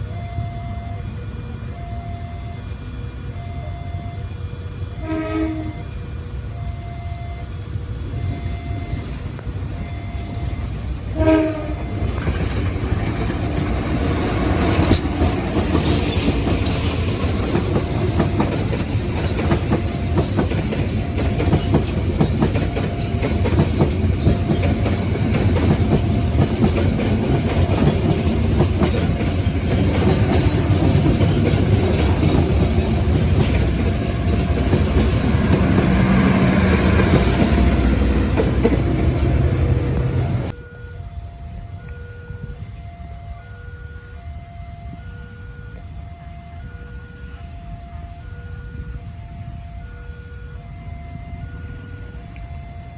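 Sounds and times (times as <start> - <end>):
level crossing warning alarm: 0.0 - 52.9
train rumble: 0.0 - 52.9
train horn blast: 4.5 - 6.1, 11.0 - 12.4, 22.6 - 51.8
wheels clacking over rail joints: 11.0 - 40.5.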